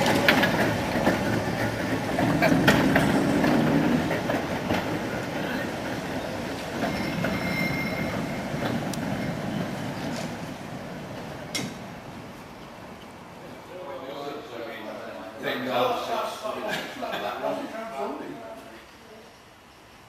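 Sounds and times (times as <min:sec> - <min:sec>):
wheels clicking over rail joints: 0:00.0 - 0:13.3
wheels squealing: 0:00.0 - 0:13.3
tram wheels rumbling on track: 0:00.0 - 0:20.0.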